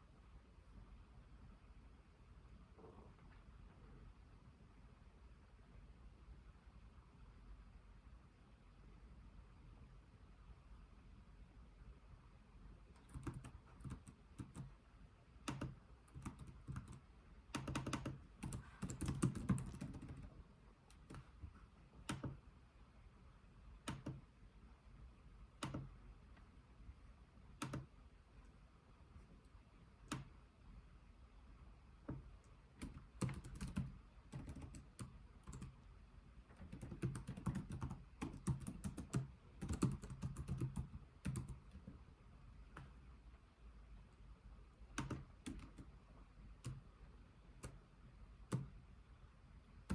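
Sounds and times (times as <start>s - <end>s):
typing on computer keyboard: 12.9s - 14.8s, 15.4s - 22.4s, 23.8s - 24.3s, 25.6s - 25.9s, 27.6s - 27.9s, 30.1s - 30.3s, 32.8s - 35.8s, 36.5s - 42.0s, 44.9s - 46.0s.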